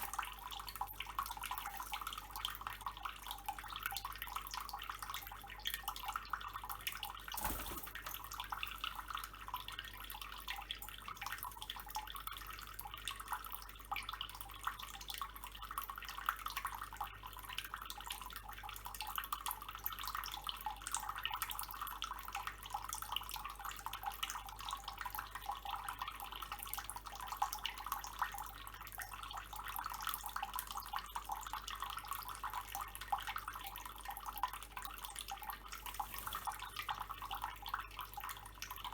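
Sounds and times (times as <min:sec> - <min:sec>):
water running from a tap: 0:35.0 - 0:37.7.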